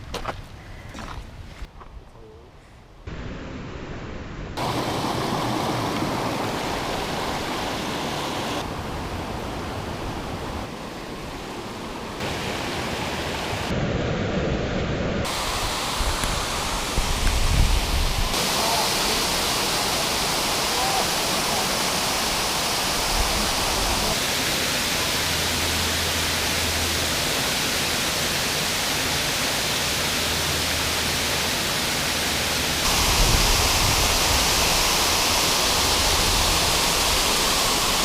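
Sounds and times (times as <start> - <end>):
waterfall rushing: 4.6 - 14.0, 15.2 - 38.0.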